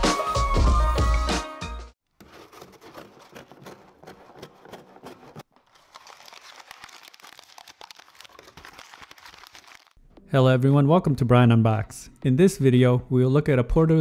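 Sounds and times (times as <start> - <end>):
packaging crinkling: 2.2 - 10.0.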